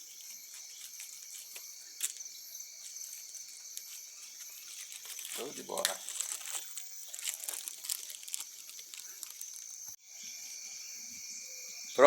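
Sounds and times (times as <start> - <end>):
crickets chirring: 0.0 - 12.0
bonfire crackling and popping: 5.0 - 10.0.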